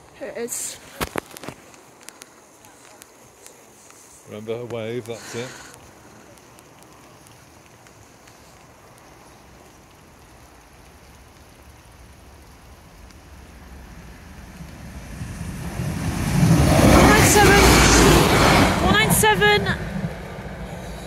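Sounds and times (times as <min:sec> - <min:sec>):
wind noise: 0:13.2 - 0:21.0
freight train approaching: 0:13.8 - 0:21.0.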